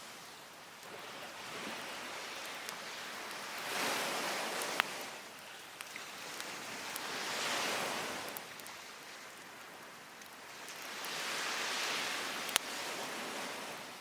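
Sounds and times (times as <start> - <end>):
wood fire crackling: 0.0 - 13.6
waves washing onto beach: 0.0 - 14.0.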